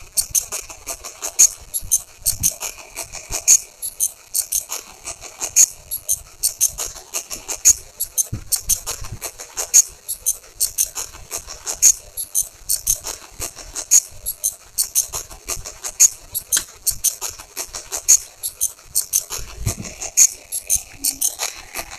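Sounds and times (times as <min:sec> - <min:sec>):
rapid high-pitched clicking and rattling: 0:00.0 - 0:21.9.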